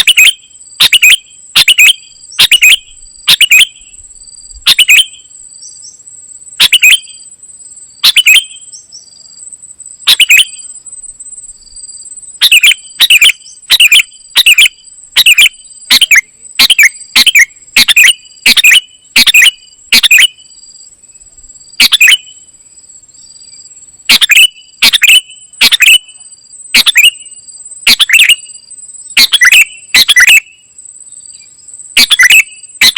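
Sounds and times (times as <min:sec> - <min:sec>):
bird chirping: 0:00.0 - 0:07.3, 0:08.0 - 0:32.9
steady high-pitched tone: 0:10.0 - 0:11.5, 0:12.4 - 0:20.7, 0:24.0 - 0:30.5.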